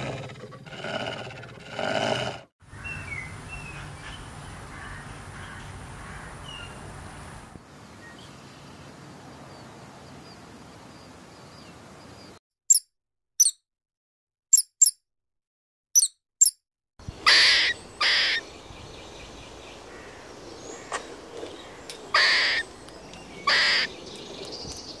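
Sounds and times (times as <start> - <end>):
squirrel rasping calls: 17.1 - 18.5, 21.7 - 22.7, 23.4 - 24.0.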